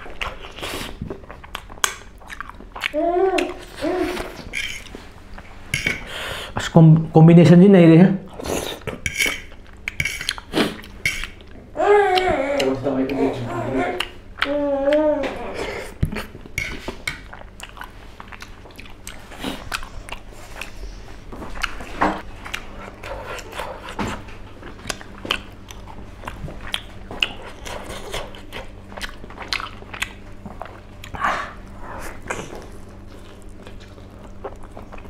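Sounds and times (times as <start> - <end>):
person chewing and biting: 0.0 - 5.0, 8.3 - 11.6, 16.0 - 35.0.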